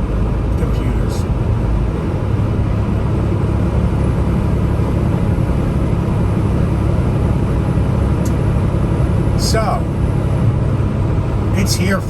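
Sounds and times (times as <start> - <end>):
road noise: 0.0 - 12.0
truck engine rumble: 0.0 - 12.0.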